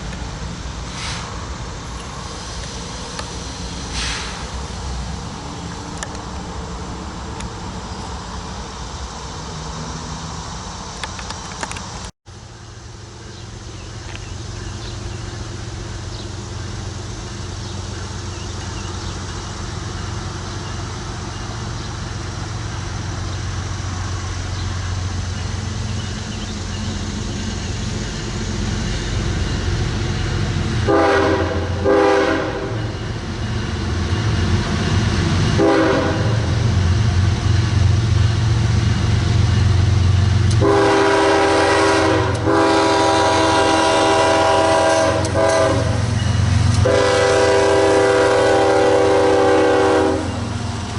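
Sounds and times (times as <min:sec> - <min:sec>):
diesel locomotive engine rumble: 0:00.0 - 0:50.9
locomotive air horn blasts: 0:30.8 - 0:32.9, 0:35.6 - 0:36.5, 0:40.5 - 0:46.1, 0:46.8 - 0:50.5.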